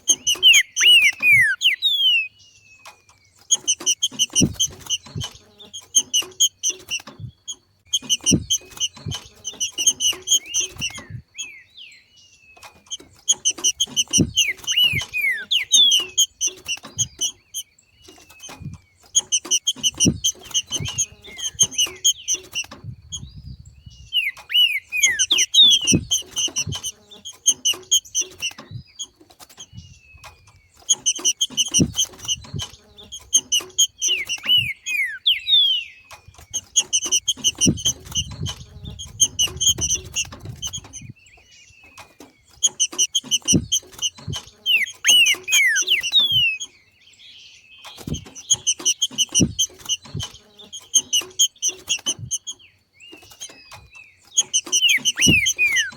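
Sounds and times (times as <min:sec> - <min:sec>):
bird chattering notes: 0:00.0 - 0:02.4, 0:03.5 - 0:11.7, 0:12.7 - 0:46.7, 0:47.9 - 0:55.9
downward-slurred bird whistles: 0:00.0 - 0:02.9, 0:12.6 - 0:29.0, 0:29.6 - 0:46.8, 0:47.8 - 0:55.9.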